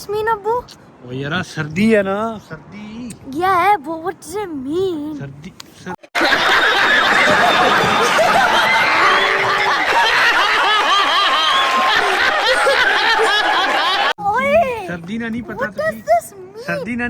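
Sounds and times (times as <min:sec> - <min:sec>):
many people laughing: 0:06.2 - 0:14.2.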